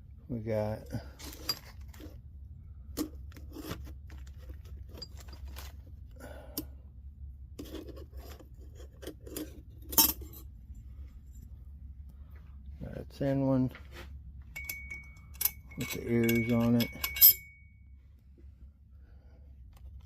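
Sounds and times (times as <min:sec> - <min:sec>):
small metal parts scraping and clicking: 0:00.9 - 0:02.2, 0:02.9 - 0:05.9, 0:07.6 - 0:10.5, 0:14.6 - 0:17.6.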